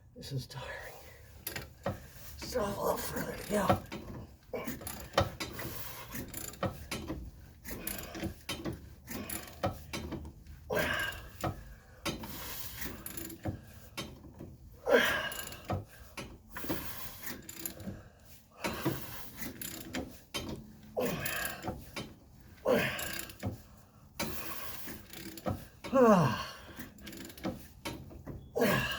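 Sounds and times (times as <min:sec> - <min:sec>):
ratchet wrench clicking: 0:24.2 - 0:25.5, 0:27.0 - 0:27.5.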